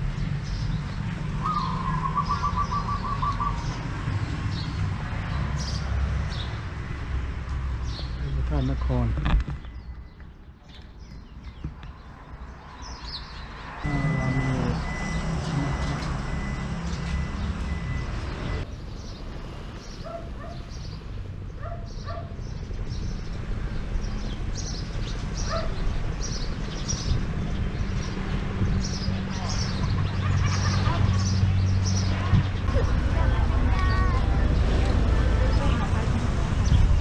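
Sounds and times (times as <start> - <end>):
small birds chirping: 0.0 - 34.8
thin high tone: 13.9 - 16.7.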